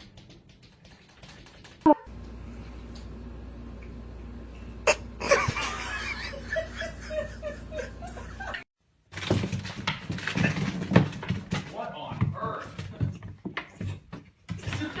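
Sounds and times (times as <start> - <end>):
person laughing: 4.8 - 8.7.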